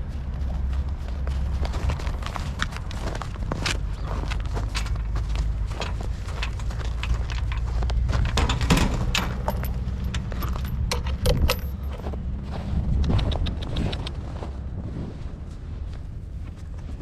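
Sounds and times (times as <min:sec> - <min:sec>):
steady low rumble: 0:00.0 - 0:17.0
metallic clinking and rattling: 0:03.6 - 0:12.2.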